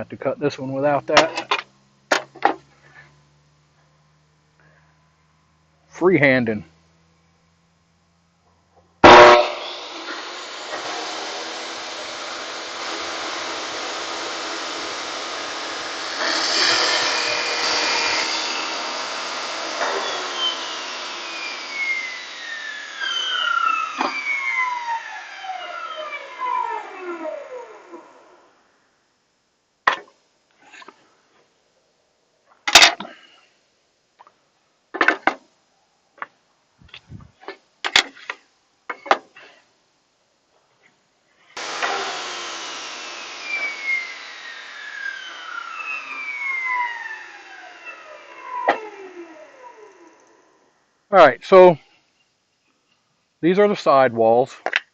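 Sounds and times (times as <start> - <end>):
electric saw cutting wood: 9.0 - 28.4, 41.6 - 50.6.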